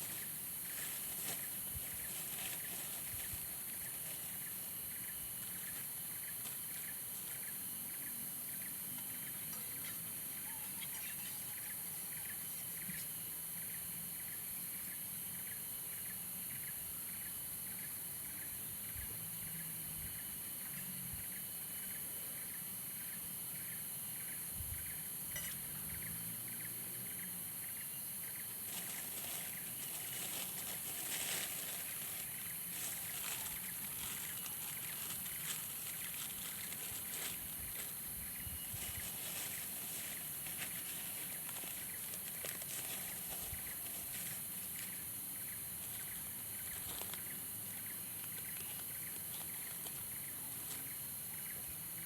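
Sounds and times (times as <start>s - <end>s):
steady high hiss: 0.0s - 25.9s.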